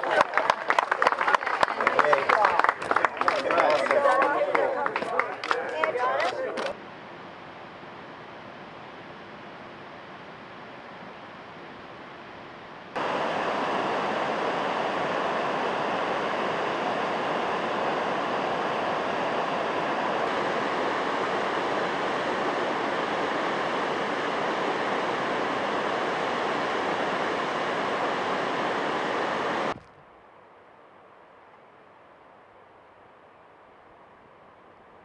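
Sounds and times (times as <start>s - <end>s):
waterfall rushing: 13.0s - 29.7s.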